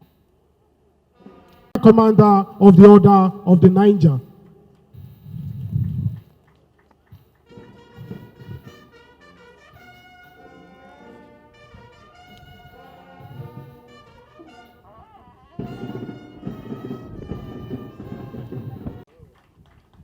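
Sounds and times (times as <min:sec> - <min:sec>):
brass band playing: 0:07.5 - 0:14.9, 0:15.6 - 0:19.0.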